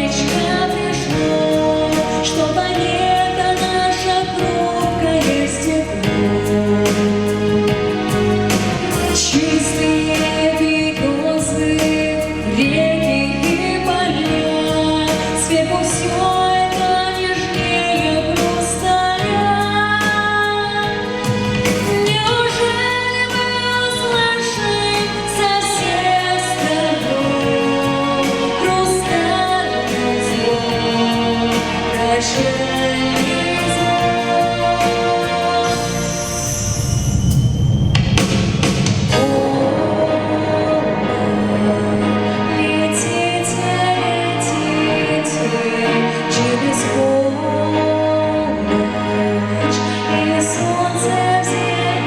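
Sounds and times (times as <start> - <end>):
woman singing: 0.0 - 36.4, 39.1 - 52.0
instrumental backing track: 0.0 - 37.1.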